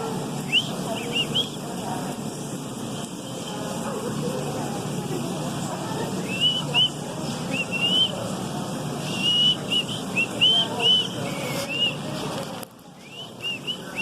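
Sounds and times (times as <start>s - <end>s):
low background noise: 0.0s - 14.0s
bird whistling song: 0.4s - 1.6s, 6.2s - 8.2s, 9.0s - 12.1s, 13.0s - 14.0s.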